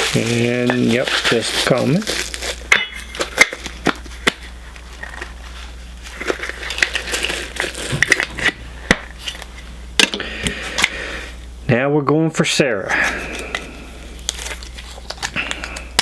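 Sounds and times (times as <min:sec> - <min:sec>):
plastic packaging crinkling: 0:00.0 - 0:09.6, 0:13.0 - 0:16.0.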